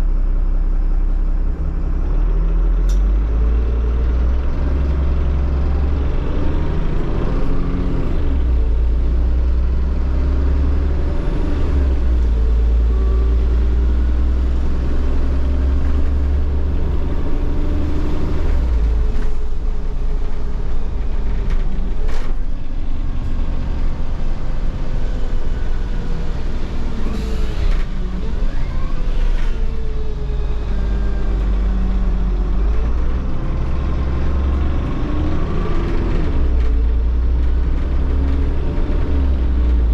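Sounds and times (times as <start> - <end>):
bus engine drone: 0.0 - 39.9.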